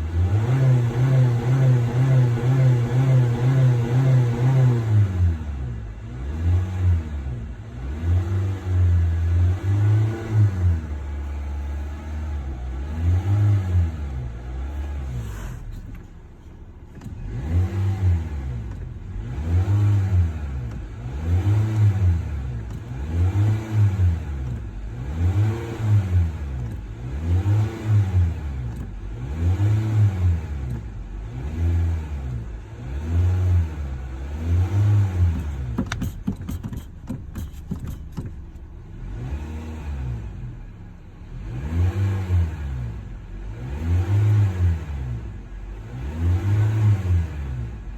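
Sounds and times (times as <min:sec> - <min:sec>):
car engine revving: 0:00.0 - 0:47.9.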